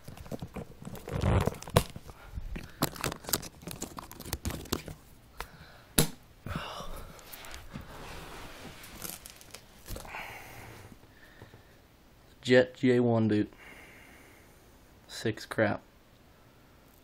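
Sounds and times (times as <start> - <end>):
wrapping crinkling and rustling: 0.0 - 5.1, 7.2 - 10.1.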